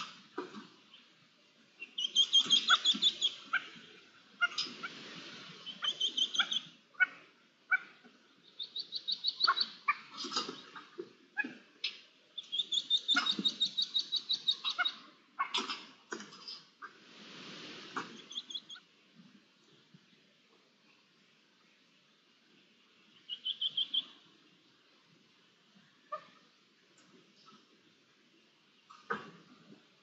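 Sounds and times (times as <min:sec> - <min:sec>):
low rustling on the ground: 0:16.2 - 0:21.0.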